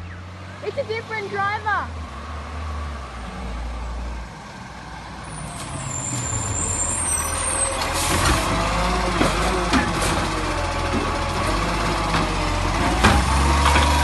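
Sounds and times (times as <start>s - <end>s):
garbage truck diesel engine: 0.0s - 14.0s
air brakes squealing: 5.3s - 8.2s.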